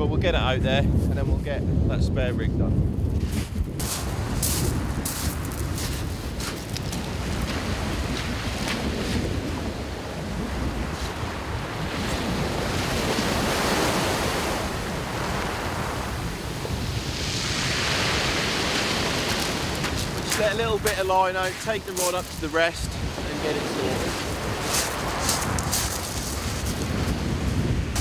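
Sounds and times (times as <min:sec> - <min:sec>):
wind buffeting microphone: 0:00.0 - 0:28.0
footsteps on shingle: 0:03.2 - 0:09.2, 0:18.6 - 0:28.0
waves breaking on shingle: 0:03.8 - 0:09.3, 0:17.2 - 0:27.2.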